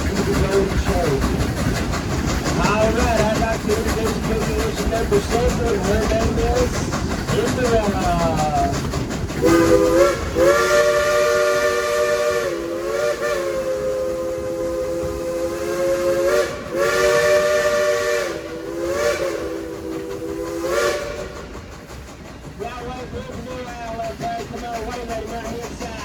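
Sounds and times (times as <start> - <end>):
steam hissing: 0.0 - 26.0
chime steam whistle blasts: 9.4 - 21.1.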